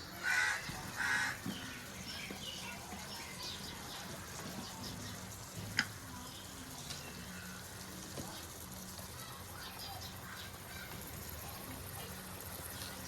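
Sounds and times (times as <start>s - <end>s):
small birds chirping: 0.0s - 13.0s
crow cawing: 0.2s - 1.4s.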